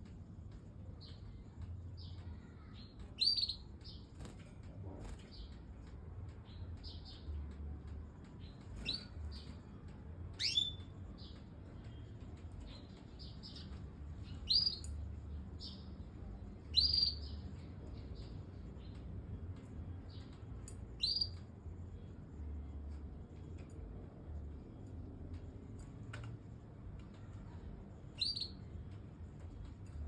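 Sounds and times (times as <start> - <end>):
canary chirping: 2.6 - 4.3, 10.4 - 11.4, 13.2 - 15.9, 16.7 - 17.6, 20.9 - 21.4, 28.1 - 28.8.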